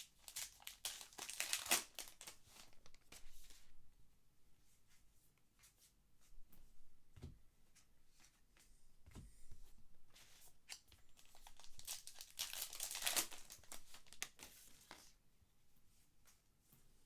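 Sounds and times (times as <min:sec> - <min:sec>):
wrapper tearing and crinkling: 0:00.0 - 0:03.0, 0:10.7 - 0:15.0.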